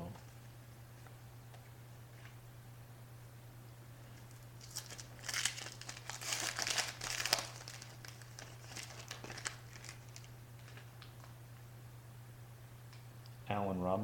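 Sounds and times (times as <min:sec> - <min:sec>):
low steady hum: 0:00.0 - 0:14.0
cards being handled: 0:04.2 - 0:11.3
plastic wrapper tearing and crinkling: 0:04.3 - 0:11.3.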